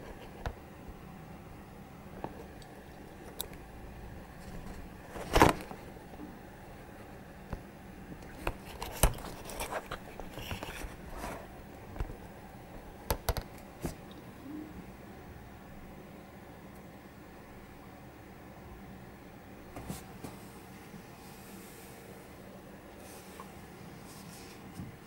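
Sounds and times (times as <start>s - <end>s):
low steady background noise: 0.0s - 25.0s.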